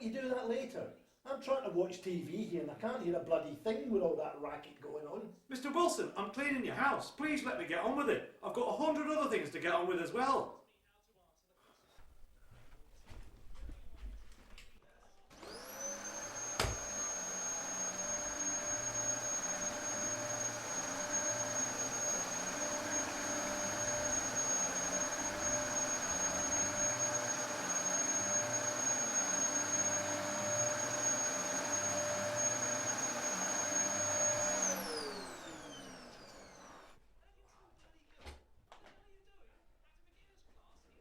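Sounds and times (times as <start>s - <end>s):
vacuum cleaner motor whining: 15.3s - 37.0s.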